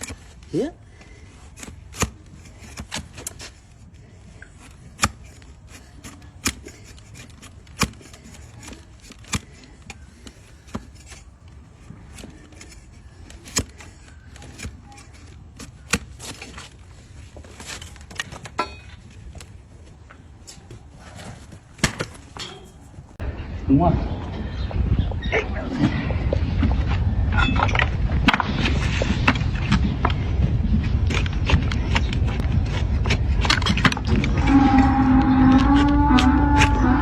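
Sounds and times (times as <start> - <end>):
hoof trimming tool clicks: 4.4 - 16.6, 35.5 - 36.8.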